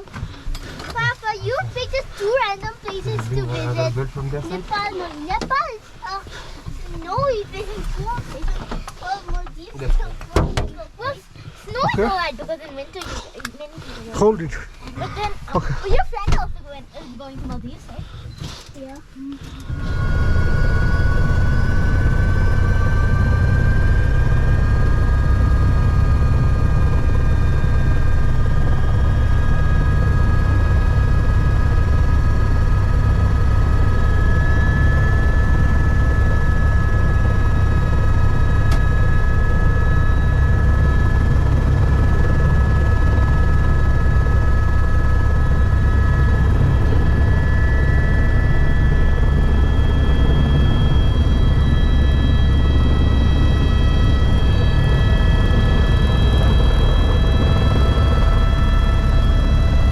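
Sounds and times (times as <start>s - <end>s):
helicopter rotor drone: 0.0s - 59.9s
high turbine whine: 0.0s - 59.9s.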